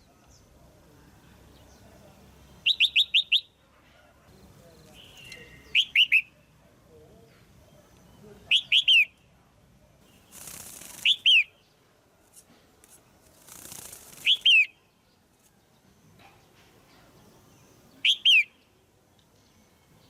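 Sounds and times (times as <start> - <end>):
bird calling sharp notes: 2.6 - 3.6, 5.0 - 6.4, 8.5 - 9.2, 18.0 - 18.6
rustle: 10.0 - 11.4, 12.2 - 17.2.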